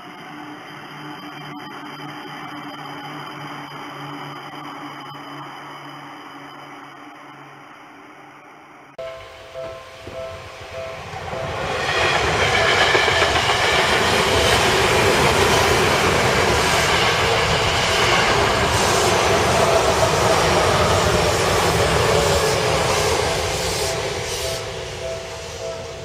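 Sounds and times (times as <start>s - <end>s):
train wheels on rail: 9.0s - 26.0s.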